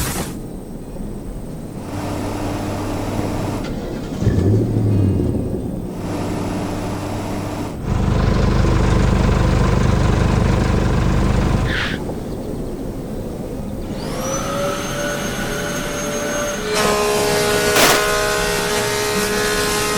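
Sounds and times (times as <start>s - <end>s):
cartoon machine motor hum: 4.3s - 11.9s.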